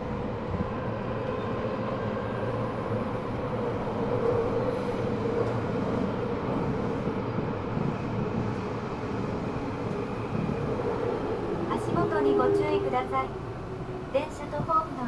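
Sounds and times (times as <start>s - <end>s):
train wheels rumbling: 6.6s - 15.0s.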